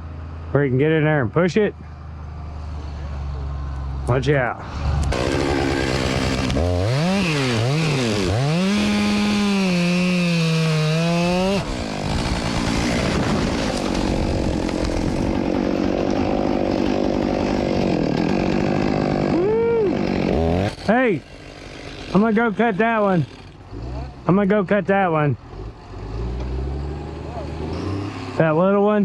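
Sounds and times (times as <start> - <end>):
chainsaw engine revving: 4.6 - 24.5, 25.5 - 28.6.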